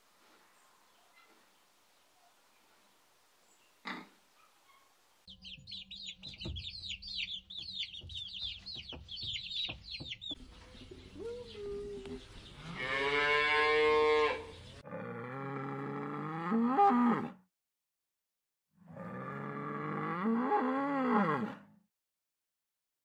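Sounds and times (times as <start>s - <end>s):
chicks peeping: 4.4s - 12.8s
cow mooing: 12.6s - 17.4s, 18.9s - 21.7s.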